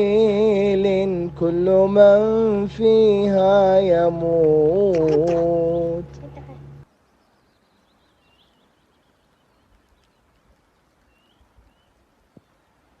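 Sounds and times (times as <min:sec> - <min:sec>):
faint bird chirps: 0:04.8 - 0:12.8.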